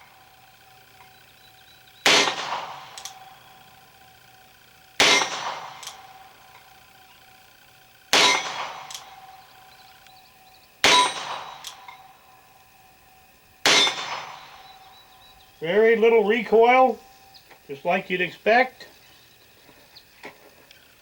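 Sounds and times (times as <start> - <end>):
metallic ringing of steel target: 2.0 - 3.5, 5.0 - 6.2, 8.1 - 9.8, 10.4 - 12.9, 13.6 - 15.3
revolver shots: 13.6 - 14.9.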